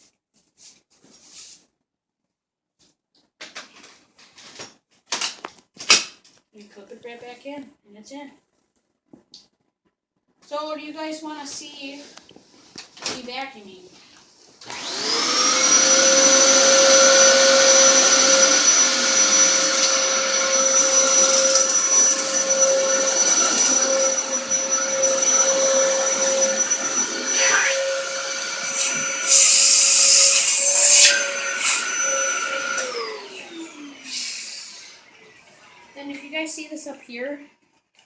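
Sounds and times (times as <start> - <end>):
vacuum cleaner whining: 14.6 - 36.7.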